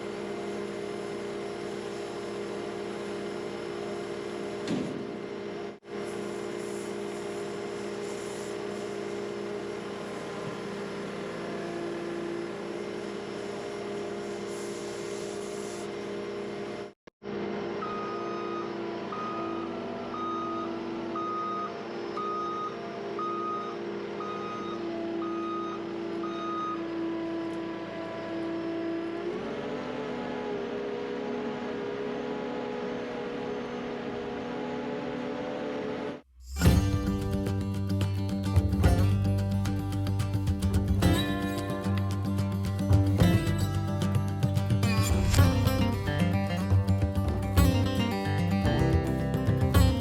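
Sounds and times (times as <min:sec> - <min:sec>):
skid steer engine running: 0:00.0 - 0:50.0
backup alarm beeping: 0:17.8 - 0:27.0.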